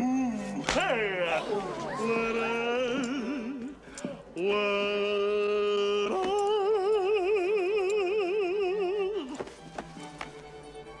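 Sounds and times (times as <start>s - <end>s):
man singing long held notes: 2.0s - 9.5s.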